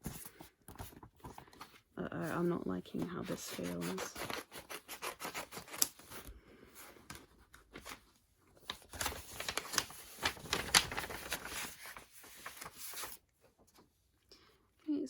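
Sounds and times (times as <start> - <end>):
packaging crinkling and tearing: 8.6 - 13.2.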